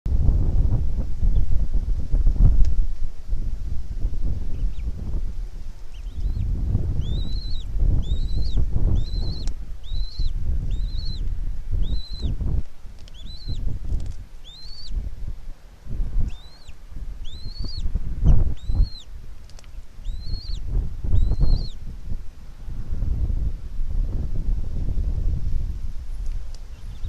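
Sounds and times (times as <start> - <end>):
wind rumbling on microphone: 0.0 - 27.0
bird chirping: 4.5 - 4.9, 5.8 - 13.7, 14.4 - 15.0, 16.2 - 21.8, 26.1 - 27.0.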